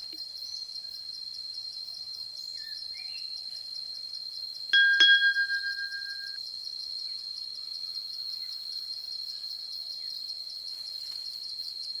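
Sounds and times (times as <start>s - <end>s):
insect trill: 0.2s - 12.0s
chime ringing: 4.8s - 6.4s.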